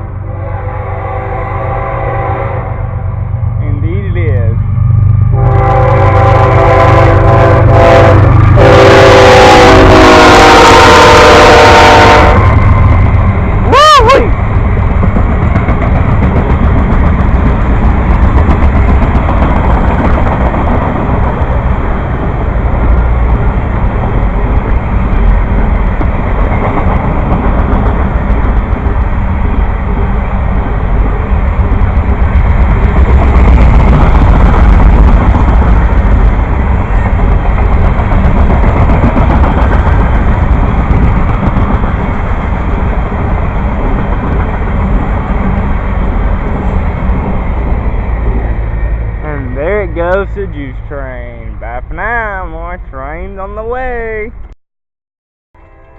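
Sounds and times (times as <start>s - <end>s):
freight train rumbling past: 0.0s - 54.5s.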